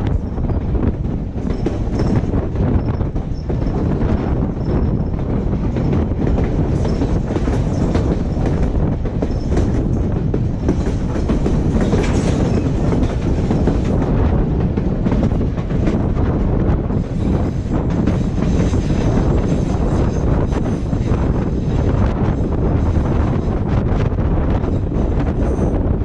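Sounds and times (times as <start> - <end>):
train rumble: 0.0 - 26.0
wheels clattering over rails: 0.1 - 16.5.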